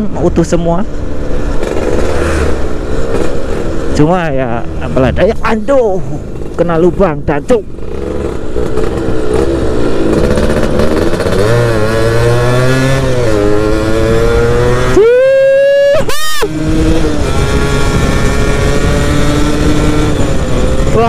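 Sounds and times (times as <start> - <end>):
two-stroke moped engine revving: 1.5 - 3.8, 6.3 - 15.0, 16.4 - 21.0.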